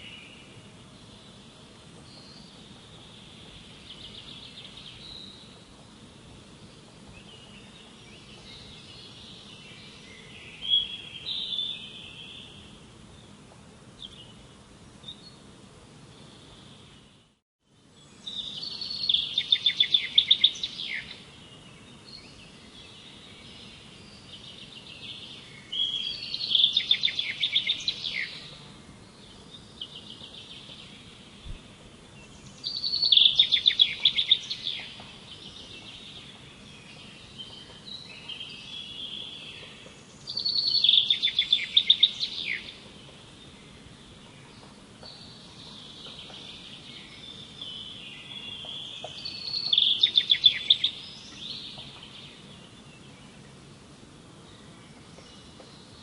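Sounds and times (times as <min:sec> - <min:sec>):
steady background hiss: 0:00.0 - 0:56.0
songbird trilling: 0:18.3 - 0:21.2, 0:25.6 - 0:28.6, 0:32.4 - 0:36.1, 0:37.4 - 0:42.8, 0:45.1 - 0:51.8.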